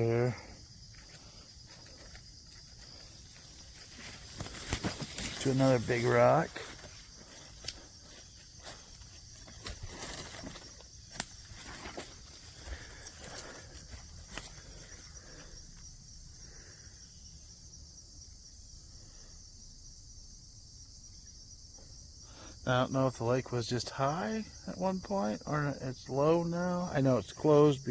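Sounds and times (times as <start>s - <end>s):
crickets and insects chorus: 0.0s - 27.9s
footsteps: 0.3s - 14.9s.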